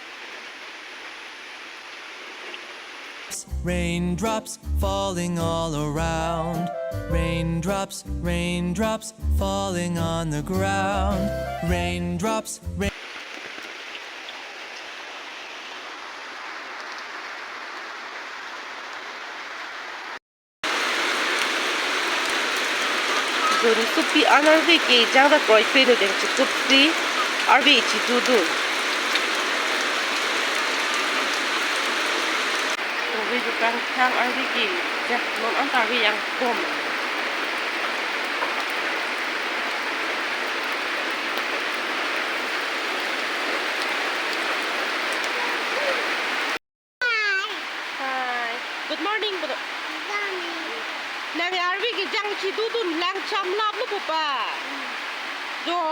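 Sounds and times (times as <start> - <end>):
steady rain falling: 0.0 - 3.4, 12.9 - 55.9
faint raindrop ticks: 13.2 - 14.9, 16.8 - 17.1, 32.6 - 38.8.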